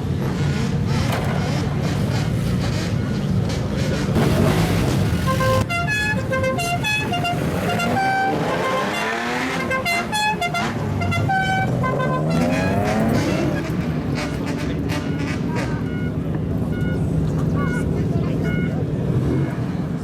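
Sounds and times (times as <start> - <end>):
car engine revving: 0.0 - 18.2
car exhaust rumble: 0.0 - 20.0
musical car horn tune: 5.2 - 19.4.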